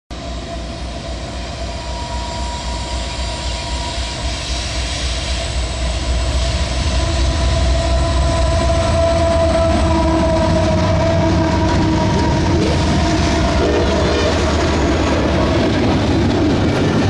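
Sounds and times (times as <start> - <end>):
diesel locomotive engines rumbling: 0.1 - 17.0.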